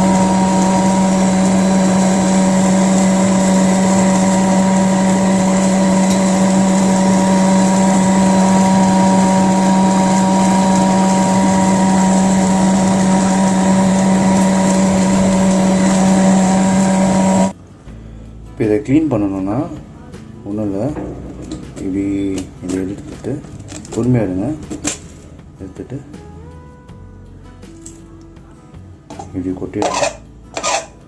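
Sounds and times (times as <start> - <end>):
vacuum cleaner motor humming: 0.0 - 17.6.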